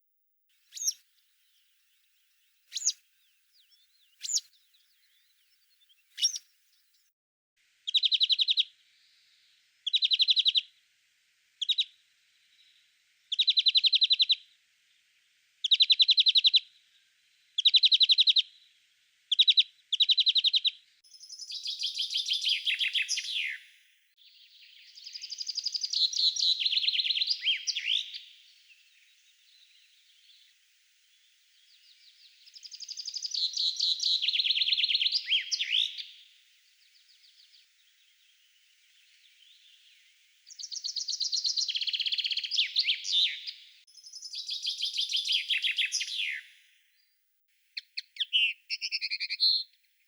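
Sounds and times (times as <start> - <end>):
songbirds singing: 0.6 - 7.1, 7.9 - 50.0.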